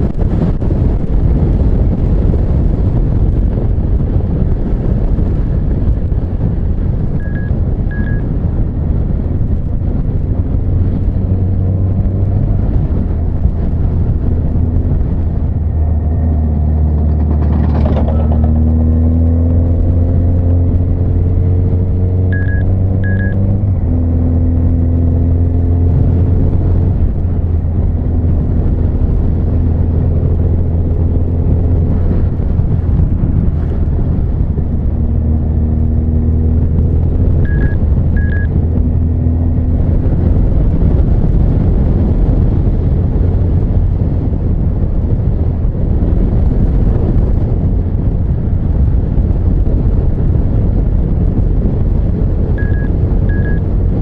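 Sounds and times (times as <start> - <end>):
motorcycle engine accelerating: 0.0 - 54.0
short high beeps: 7.2 - 8.2, 22.3 - 23.5, 37.5 - 38.5, 52.6 - 53.7.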